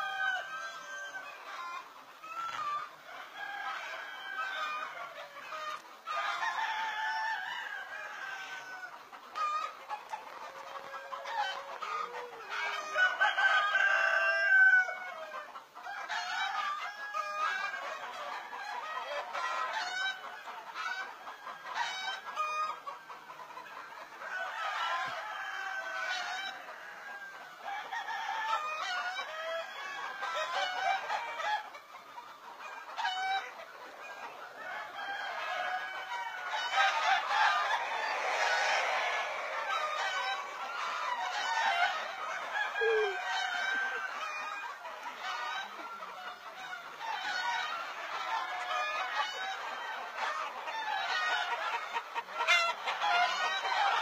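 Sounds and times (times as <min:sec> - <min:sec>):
rooster crowing: 0:00.0 - 0:01.8, 0:02.5 - 0:05.2, 0:06.1 - 0:09.0, 0:10.6 - 0:15.4, 0:24.3 - 0:31.6, 0:34.2 - 0:46.1
chickens clucking: 0:00.0 - 0:54.0.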